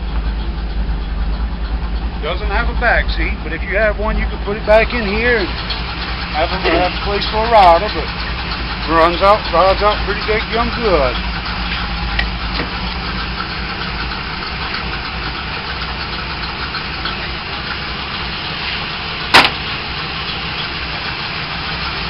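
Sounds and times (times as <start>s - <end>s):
car engine idling: 0.0s - 22.0s
sharp clack: 19.3s - 19.7s.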